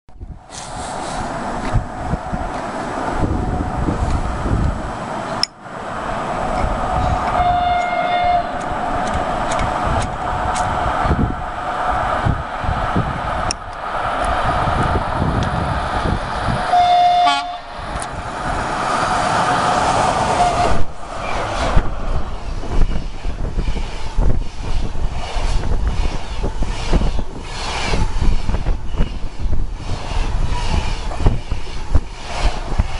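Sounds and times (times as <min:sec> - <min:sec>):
locomotive horn blasts: 0:07.3 - 0:08.5, 0:16.7 - 0:17.7.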